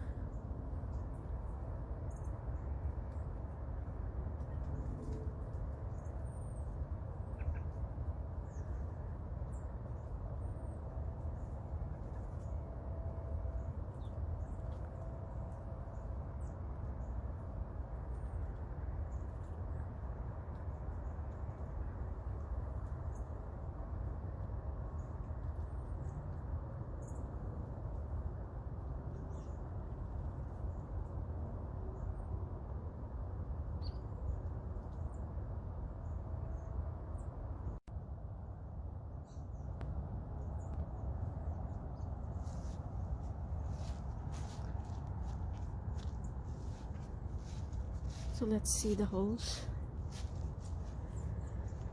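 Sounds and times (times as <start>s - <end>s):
low outdoor rumble: 0.0s - 51.9s
faint high bird chirps: 5.9s - 8.8s, 33.8s - 34.3s
faint bird chirps: 7.2s - 8.8s.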